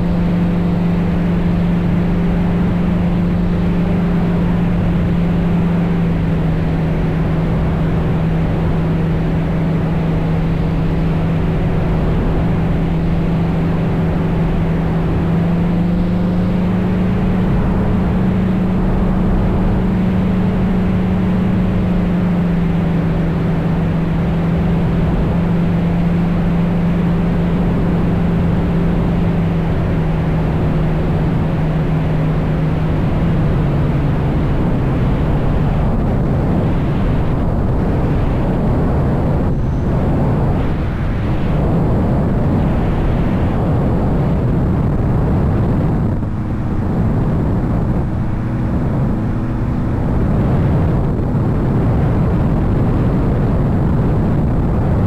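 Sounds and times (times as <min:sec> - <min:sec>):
helicopter running: 0:30.4 - 0:44.5.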